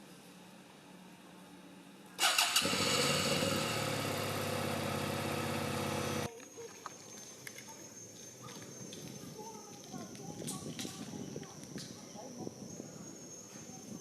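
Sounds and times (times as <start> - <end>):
small engine starting and running: 2.2 - 6.3.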